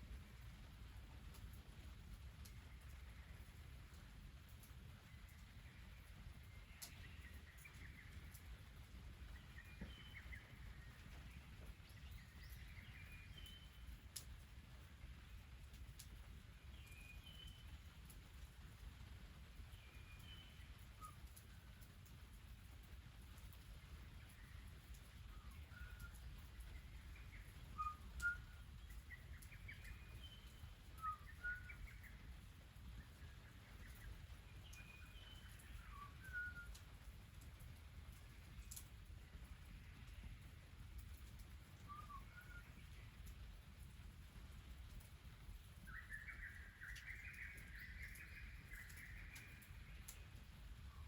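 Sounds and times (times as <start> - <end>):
faint sharp clicks: 1.3 - 1.6, 2.4 - 3.5, 4.4 - 5.6, 6.3 - 8.6, 13.4 - 14.5, 15.6 - 16.2, 20.2 - 32.0, 33.0 - 44.0, 44.7 - 50.5
birds chirping faintly: 1.4 - 51.0
birds chirping and whistling: 27.1 - 32.1, 34.7 - 36.8, 41.9 - 42.9, 45.8 - 49.7.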